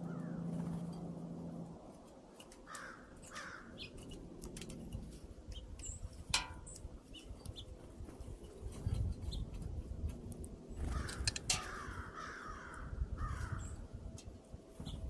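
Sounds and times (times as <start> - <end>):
crows cawing: 0.0 - 0.4, 2.6 - 3.8, 10.8 - 13.8
small birds chirping: 2.0 - 14.0, 14.7 - 15.0.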